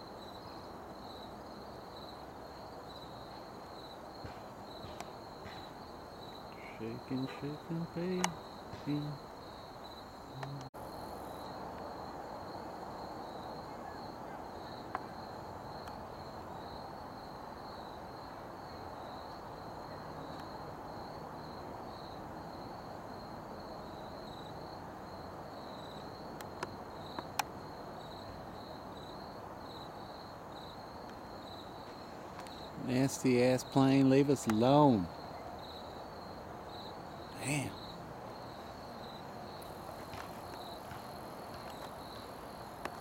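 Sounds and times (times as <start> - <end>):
crickets chirping: 0.0 - 43.0
faint clicks: 10.4 - 10.7.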